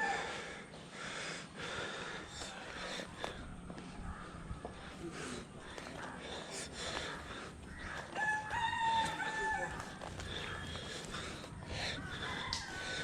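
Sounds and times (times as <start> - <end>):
rooster crowing: 0.0 - 0.3, 7.8 - 10.8, 11.8 - 13.0.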